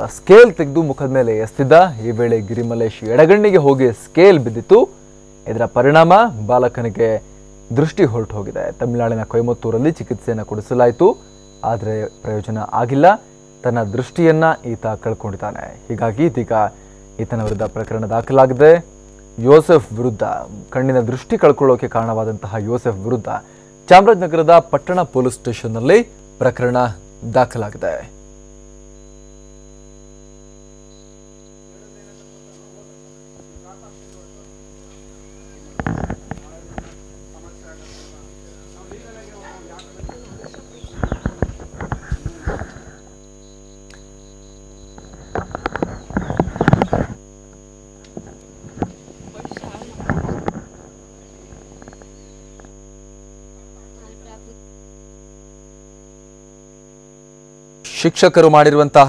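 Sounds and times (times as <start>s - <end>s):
electrical mains hum: 0.0s - 59.0s
thin high-pitched whine: 0.0s - 59.0s
faint voices: 31.7s - 43.2s.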